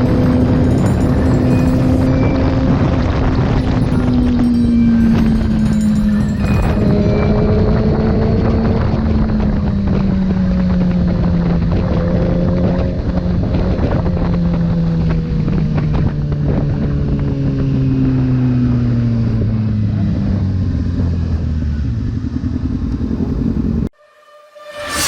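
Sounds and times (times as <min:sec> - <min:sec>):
motorcycle engine slowing: 0:00.0 - 0:14.8
wind buffeting microphone: 0:00.0 - 0:23.8.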